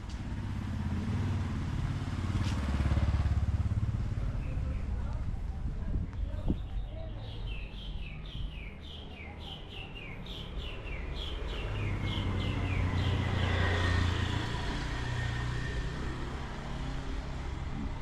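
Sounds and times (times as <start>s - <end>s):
vehicle engine passing: 0.1s - 5.2s, 11.2s - 18.0s.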